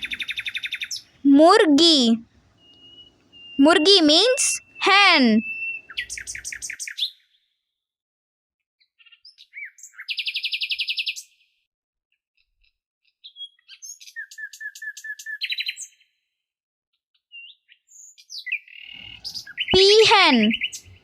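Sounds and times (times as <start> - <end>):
songbird chirping: 0.0 - 6.5, 19.0 - 21.0.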